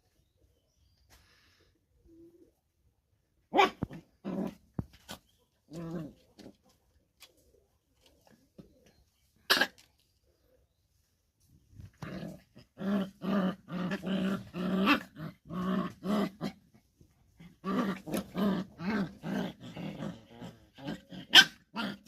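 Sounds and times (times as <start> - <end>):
dog growling: 12.0 - 16.6, 17.4 - 22.0
dog yelping: 21.2 - 22.0.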